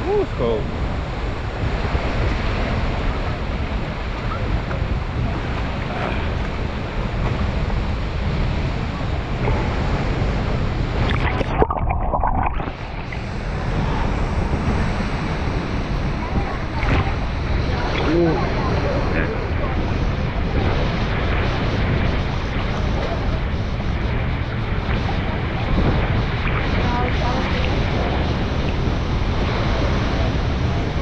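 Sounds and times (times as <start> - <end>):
waterfall roaring: 0.0 - 31.0.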